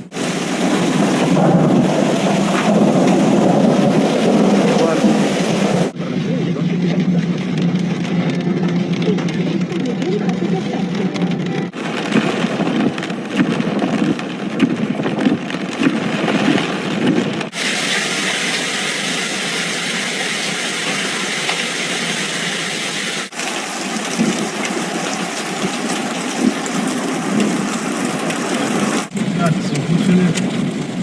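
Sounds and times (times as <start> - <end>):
hail and rain beating on a car: 0.0 - 31.0
car engine running: 4.3 - 12.4.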